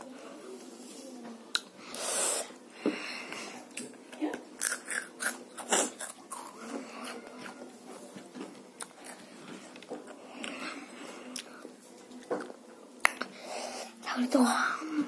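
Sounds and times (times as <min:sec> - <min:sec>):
child chewing noodles: 0:01.5 - 0:14.0.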